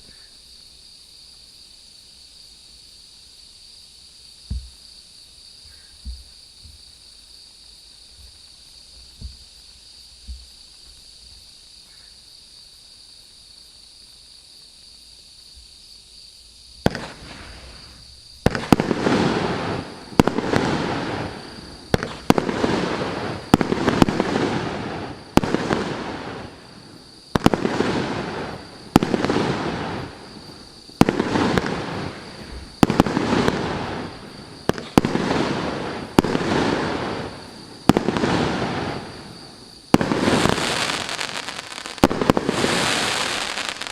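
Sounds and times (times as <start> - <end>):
faint steady hiss: 0.0 - 43.9
soft thumps: 4.5 - 4.8, 6.0 - 6.8, 10.2 - 10.5
firework fountain hissing: 16.4 - 43.9
firework shots and bursts: 16.8 - 43.9.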